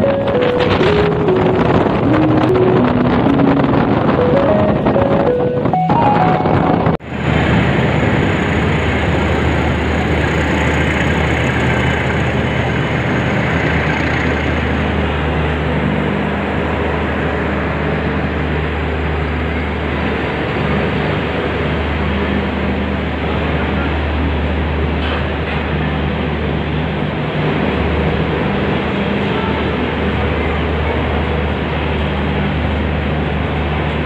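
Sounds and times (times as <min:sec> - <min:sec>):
low steady drone: 0:00.0 - 0:25.0
train wheels rattling on rail: 0:24.8 - 0:34.0.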